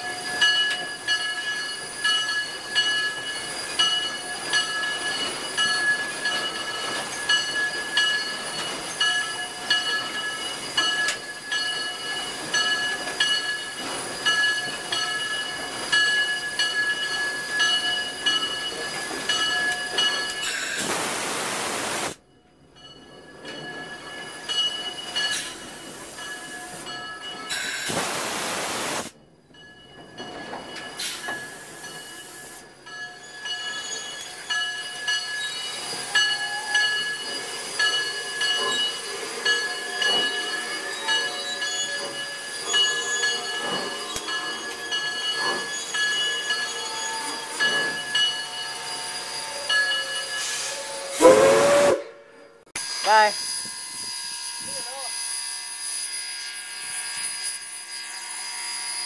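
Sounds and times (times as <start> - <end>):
train rolling on track: 0.0 - 59.0
loud rushing hiss: 20.5 - 22.2, 27.7 - 29.1.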